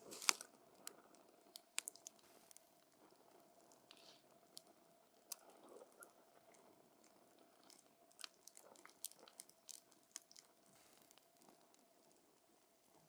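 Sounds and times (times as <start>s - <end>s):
campfire crackling and popping: 0.0s - 3.8s.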